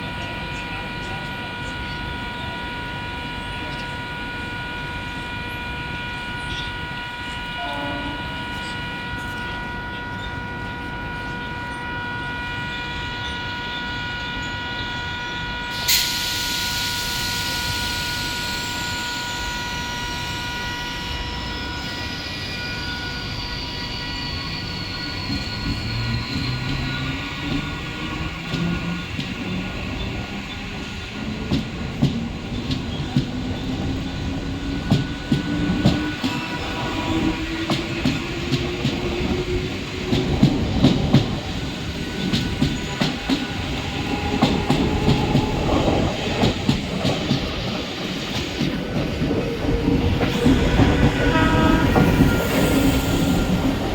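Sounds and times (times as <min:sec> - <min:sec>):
air hiss: 0:15.8 - 0:18.8.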